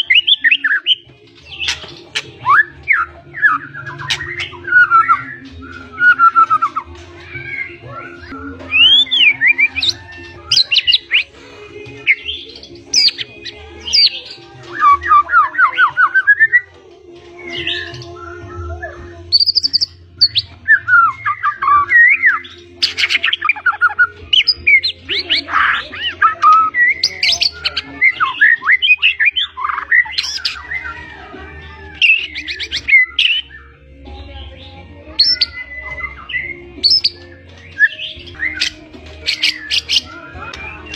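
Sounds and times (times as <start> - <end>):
songbird singing loud whistles: 17.4 - 25.4, 26.0 - 31.1, 32.0 - 33.8, 35.2 - 40.9.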